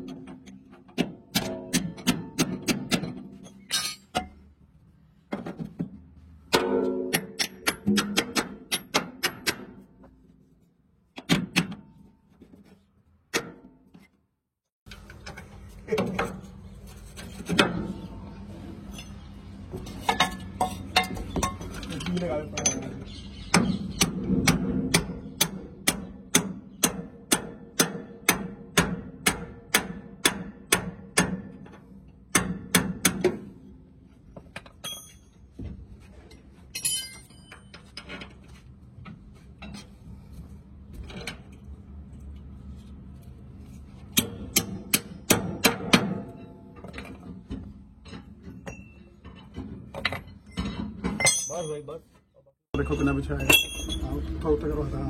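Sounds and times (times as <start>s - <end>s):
tool clatter: 0.0s - 4.5s, 18.9s - 23.0s, 34.4s - 40.0s, 45.6s - 51.9s, 52.8s - 54.2s.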